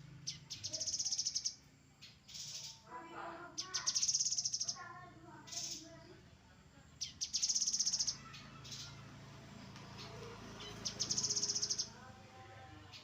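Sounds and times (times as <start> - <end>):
bird buzzy trills: 0.0 - 2.9, 3.5 - 6.0, 7.0 - 9.0, 9.9 - 12.0.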